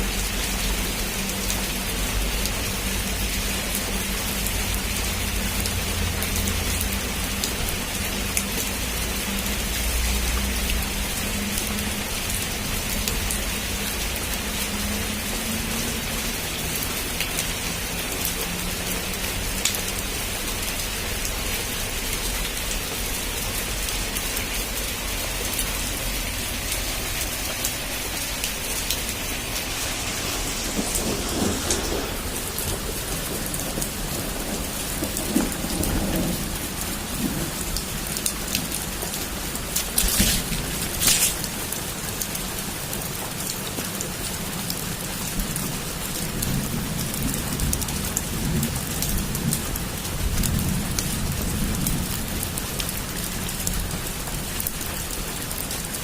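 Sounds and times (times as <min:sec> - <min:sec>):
heavy rain falling: 0:00.0 - 0:56.0
sharp raindrops striking: 0:00.0 - 0:56.0
distant thunder rumble: 0:28.8 - 0:38.7.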